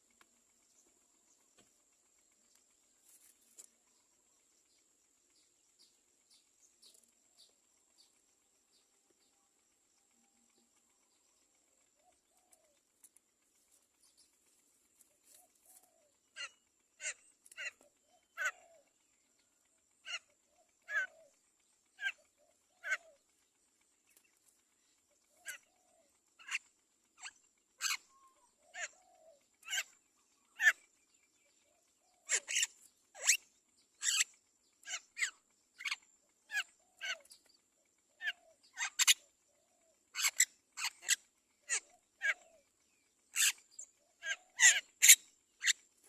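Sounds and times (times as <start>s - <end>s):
mynas raspy calls: 15.3s - 19.0s, 20.0s - 23.3s, 25.2s - 42.6s, 43.3s - 45.9s.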